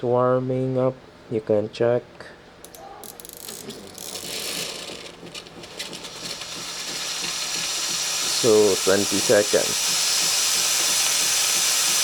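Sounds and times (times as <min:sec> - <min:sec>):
espresso machine hissing: 0:03.0 - 0:12.0
espresso machine rattling and clicking: 0:03.0 - 0:12.0.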